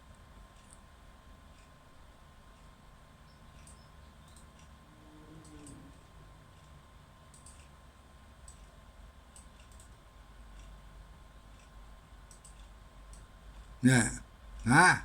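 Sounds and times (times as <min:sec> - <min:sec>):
faint light clicks: 0:03.4 - 0:04.8, 0:05.4 - 0:07.8, 0:11.5 - 0:13.7.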